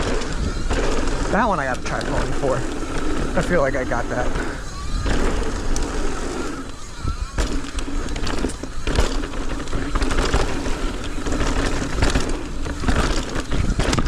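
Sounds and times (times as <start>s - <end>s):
bike frame and chain rattling: 0.0s - 14.0s
bike knocking over bumps: 0.0s - 14.0s
tyres rolling on dirt: 0.0s - 14.0s
wind buffeting microphone: 0.0s - 14.0s.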